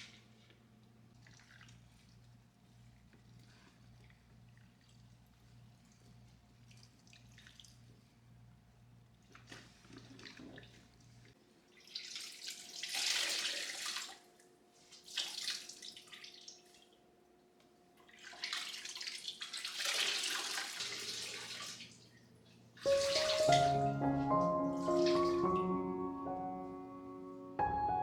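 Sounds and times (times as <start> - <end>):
water running and splashing: 22.9 - 24.0.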